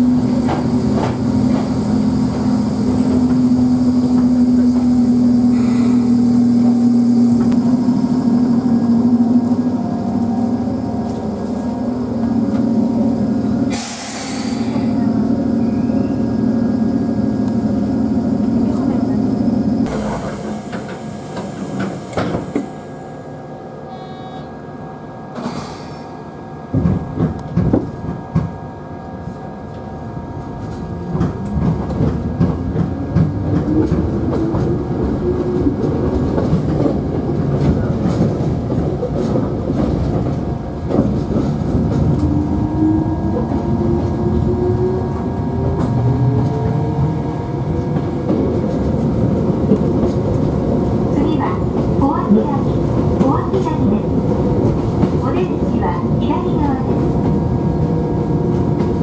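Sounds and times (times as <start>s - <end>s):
steel wheels clacking on rails: 0.0s - 7.8s, 30.6s - 42.5s, 47.8s - 59.0s
train clunks: 0.0s - 16.2s, 18.4s - 23.0s, 25.3s - 28.6s, 29.2s - 59.0s.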